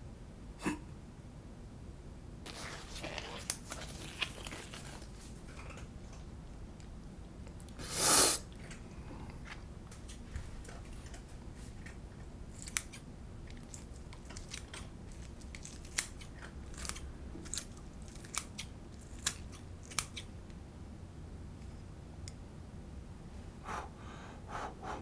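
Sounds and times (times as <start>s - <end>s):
scissors snipping: 12.5s - 20.3s.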